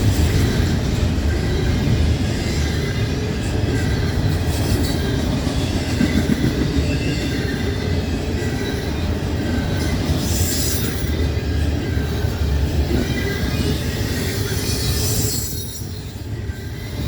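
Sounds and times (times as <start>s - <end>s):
train wheels rumbling on rail: 0.0s - 17.0s
faint high wheel squeal: 4.8s - 17.0s.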